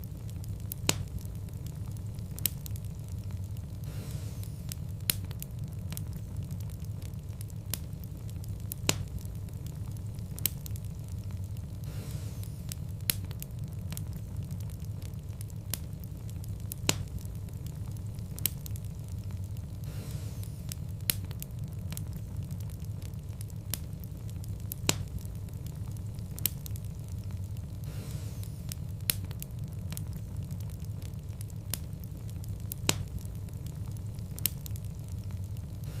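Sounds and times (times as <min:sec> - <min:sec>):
low rumble of fire flames: 0:00.0 - 0:36.0
wood fire crackles and pops: 0:00.0 - 0:36.0.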